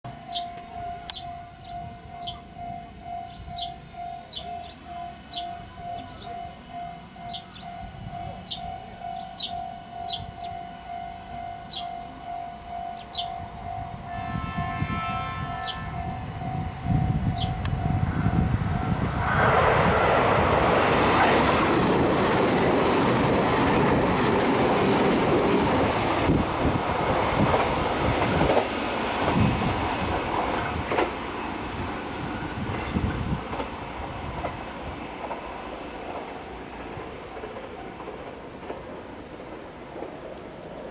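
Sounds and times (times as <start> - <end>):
level-crossing bell ringing: 0.1 - 14.1
train rushing past: 0.1 - 40.9
birds chirping: 0.2 - 2.6, 3.2 - 10.6, 11.6 - 12.0, 12.9 - 13.4, 15.6 - 15.8, 17.3 - 17.6
train horn note: 4.0 - 20.0.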